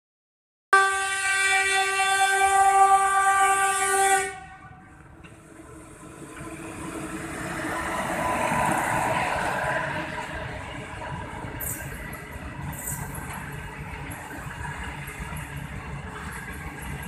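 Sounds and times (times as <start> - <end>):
locomotive horn: 0.7 - 5.0
train rumbling on rails: 0.8 - 17.0.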